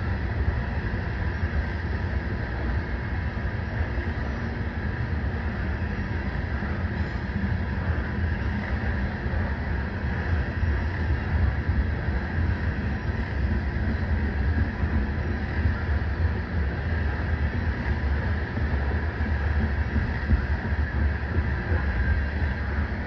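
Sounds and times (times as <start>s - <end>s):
rumble of train wheels on rails: 0.0s - 23.0s.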